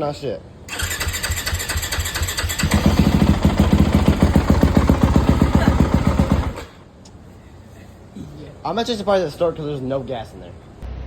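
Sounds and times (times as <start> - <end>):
dirt bike engine running: 1.5 - 6.8.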